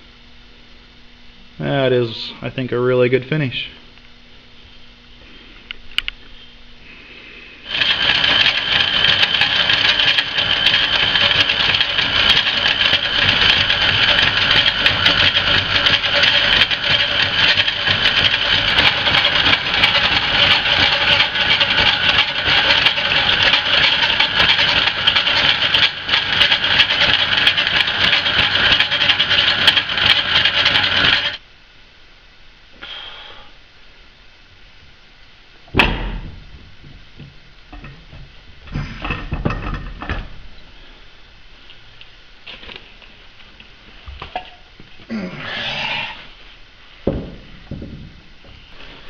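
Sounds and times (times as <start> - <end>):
power tool running with rattling tone: 7.6 - 31.4.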